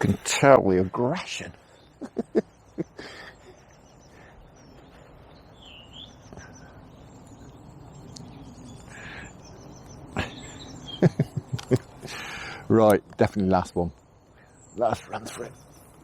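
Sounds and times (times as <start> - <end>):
low outdoor background: 0.0 - 16.0
small birds chirping: 0.0 - 16.0
sharp clicks: 11.4 - 11.9.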